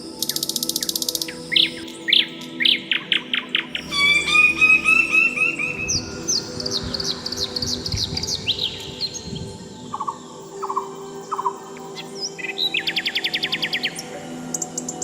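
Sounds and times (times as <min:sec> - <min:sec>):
faint music: 0:00.0 - 0:15.0
birds chirping and trilling: 0:00.2 - 0:15.0.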